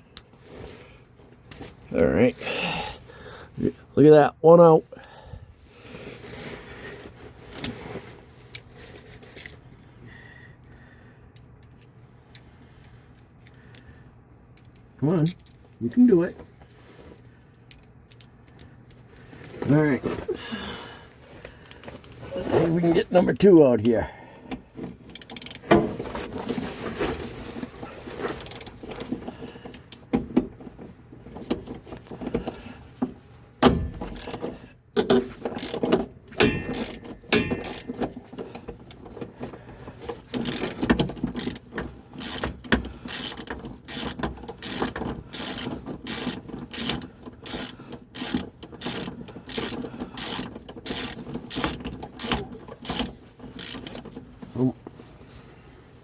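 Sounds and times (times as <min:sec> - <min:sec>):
ratchet clicking: 0:25.1 - 0:25.6, 0:33.7 - 0:34.5, 0:35.4 - 0:38.1, 0:40.2 - 0:54.2
metal clanks: 0:33.6 - 0:39.1.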